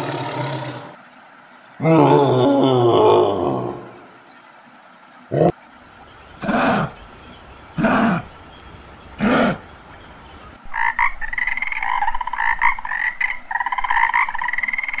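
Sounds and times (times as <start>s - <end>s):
tree frog croaking: 10.7s - 15.0s.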